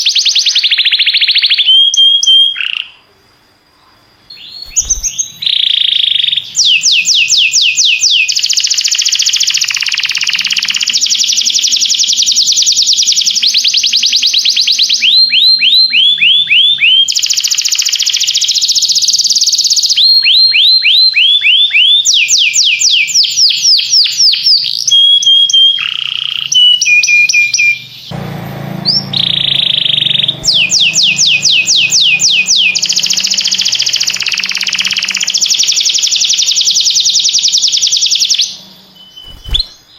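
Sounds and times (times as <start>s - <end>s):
canary singing fast trills: 0.0s - 3.0s, 4.2s - 39.9s.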